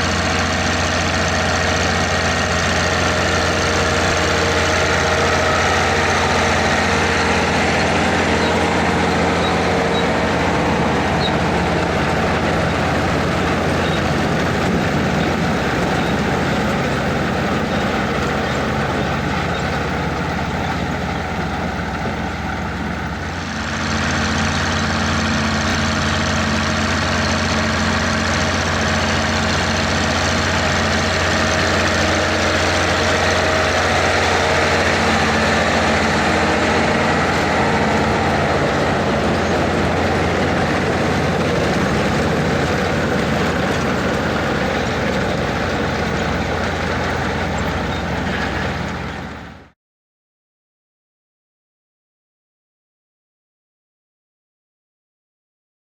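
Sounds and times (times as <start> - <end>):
machinery noise: 0.0 - 49.7
tractor diesel engine running: 0.0 - 49.8.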